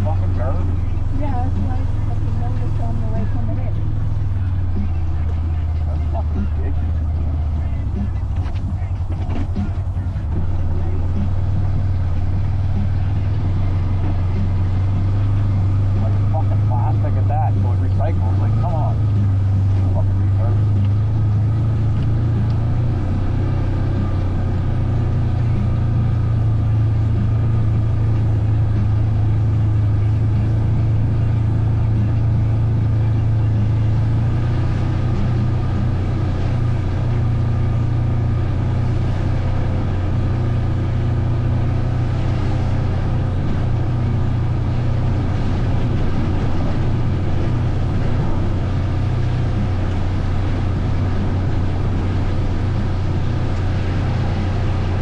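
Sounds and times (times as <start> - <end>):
vehicle engine running steadily: 0.0 - 55.0.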